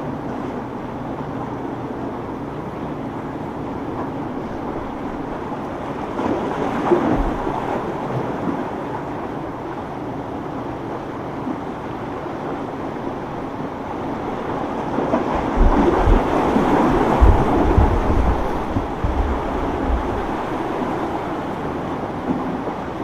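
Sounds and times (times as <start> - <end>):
boat motors: 0.0 - 23.0
surf rushing: 3.0 - 10.6, 11.4 - 23.0
wind gusting on microphone: 13.1 - 22.4.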